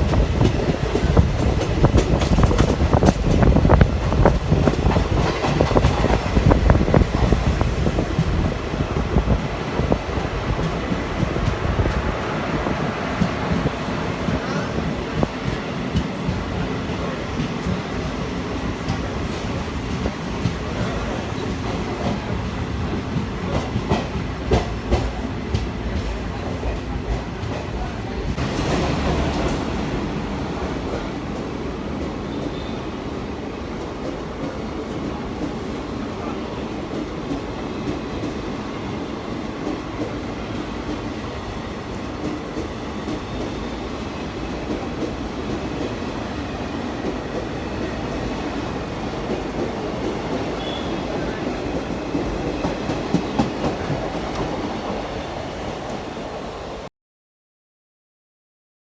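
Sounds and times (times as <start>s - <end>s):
wheels clacking over rail joints: 0.0s - 8.6s
train coach rumble: 0.0s - 56.9s.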